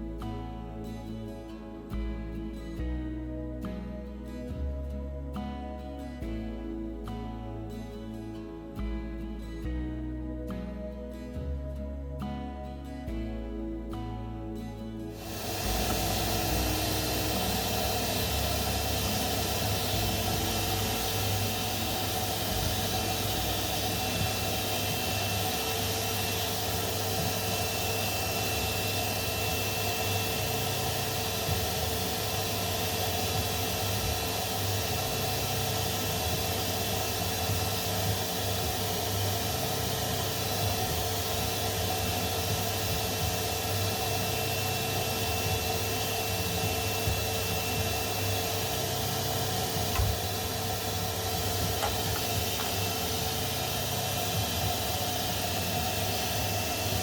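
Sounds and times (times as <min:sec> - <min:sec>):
motor-driven machine hissing and whining: 0:15.1 - 0:57.0.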